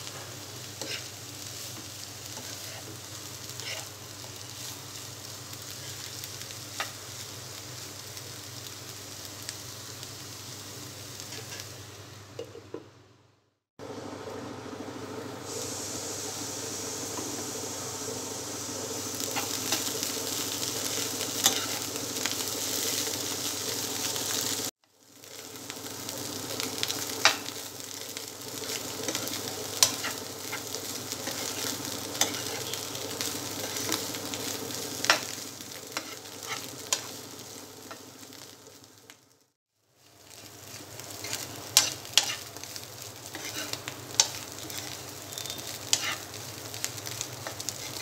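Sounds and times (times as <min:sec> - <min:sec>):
vegetables sizzling in oil: 0:00.0 - 0:12.6, 0:13.8 - 0:48.0
spatula scraping a pan: 0:00.8 - 0:01.2, 0:03.5 - 0:03.9, 0:11.3 - 0:11.7, 0:21.4 - 0:21.8, 0:32.2 - 0:32.8, 0:36.0 - 0:37.1, 0:41.2 - 0:42.4, 0:43.3 - 0:46.3, 0:47.4 - 0:48.0.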